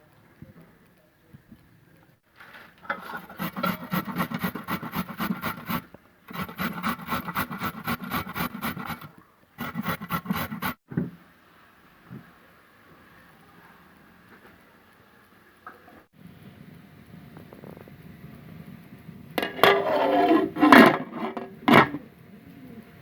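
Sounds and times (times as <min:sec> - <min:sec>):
carrot grating rasps: 0:02.9 - 0:10.8, 0:19.4 - 0:22.0.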